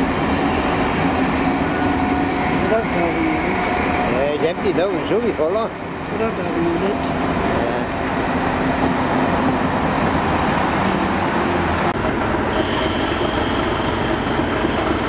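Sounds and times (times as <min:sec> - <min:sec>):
diesel locomotive engine running: 0:00.0 - 0:15.0
train coaches rumbling past: 0:00.0 - 0:15.0
high whistle: 0:12.5 - 0:14.3.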